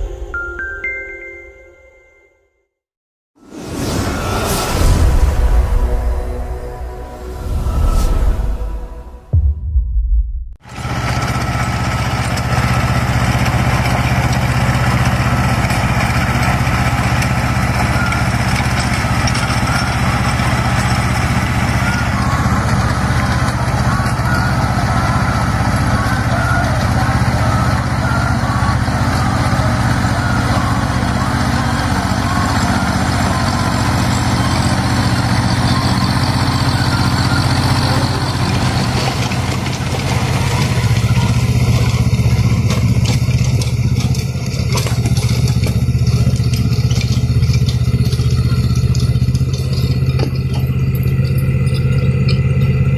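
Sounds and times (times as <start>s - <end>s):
tractor diesel engine running: 10.5s - 52.9s.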